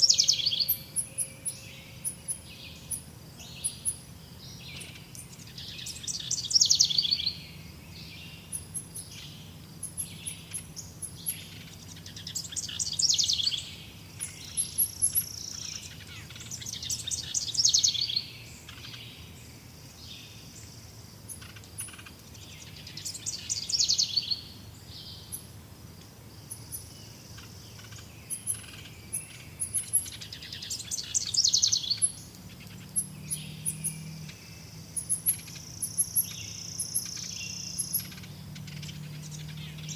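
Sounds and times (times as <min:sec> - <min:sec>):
bird trilling song: 0:00.0 - 0:20.7, 0:21.3 - 0:25.5, 0:26.5 - 0:39.9
faint high chirps: 0:26.4 - 0:39.9.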